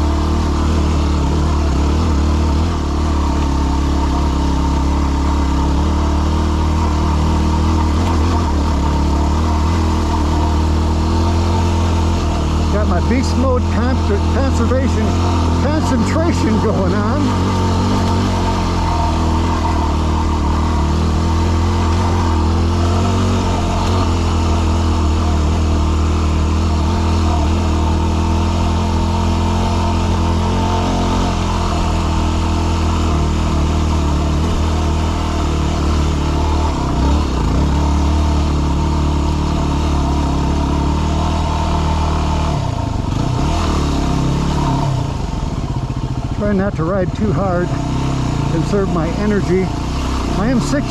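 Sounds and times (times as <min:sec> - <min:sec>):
motorcycle engine under load: 0:00.0 - 0:50.9.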